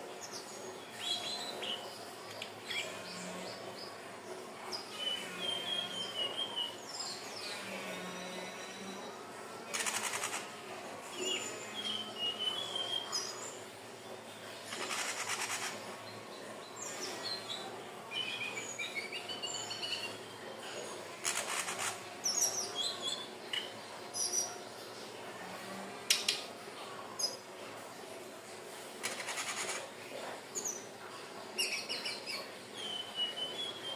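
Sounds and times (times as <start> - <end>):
bird rattling trill: 9.7 - 10.5, 14.7 - 15.8, 21.2 - 22.0, 29.0 - 29.8
bird whistling song: 32.8 - 33.9.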